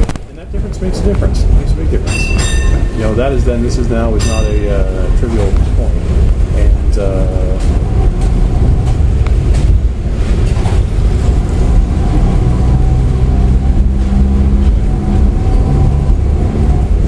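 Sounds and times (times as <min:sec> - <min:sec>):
tram rumbling and humming: 0:00.0 - 0:17.0.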